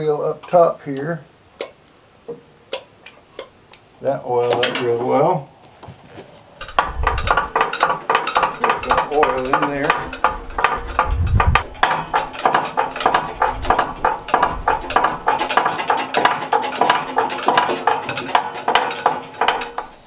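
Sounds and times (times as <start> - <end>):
metallic clicking and squeaking: 4.4 - 5.2, 6.6 - 20.0.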